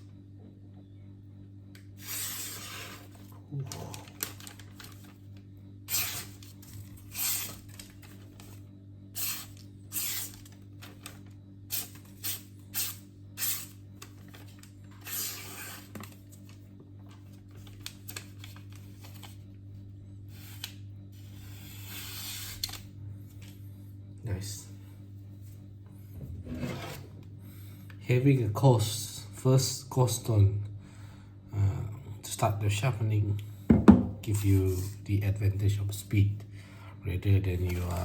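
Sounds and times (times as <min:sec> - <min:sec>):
knife slicing paper: 0:02.0 - 0:03.2, 0:05.9 - 0:08.1, 0:09.2 - 0:11.1, 0:11.7 - 0:13.8.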